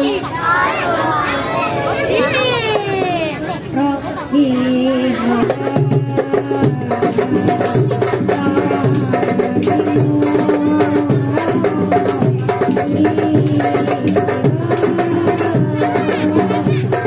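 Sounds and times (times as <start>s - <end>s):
frame drums beating: 5.3s - 17.0s.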